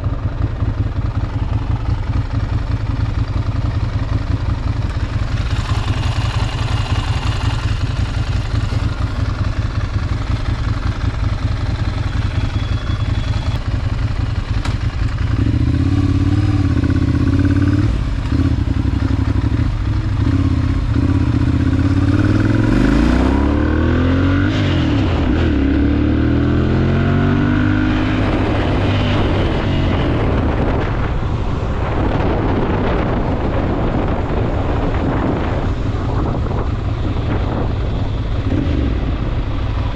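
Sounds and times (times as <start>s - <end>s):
motorcycle engine rumbling: 0.0s - 39.9s
wind noise: 13.7s - 39.9s.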